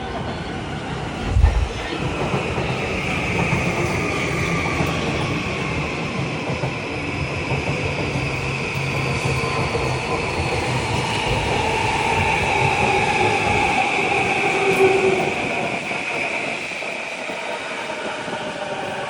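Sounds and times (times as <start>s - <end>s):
train wheels rumbling on rails: 0.0s - 19.0s
low thump: 1.2s - 2.0s.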